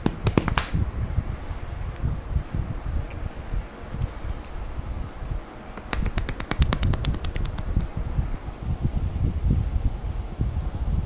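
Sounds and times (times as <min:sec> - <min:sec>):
dull thuds on skin: 0:00.0 - 0:00.8, 0:05.7 - 0:08.0
soft rubbing of massage: 0:00.0 - 0:11.0.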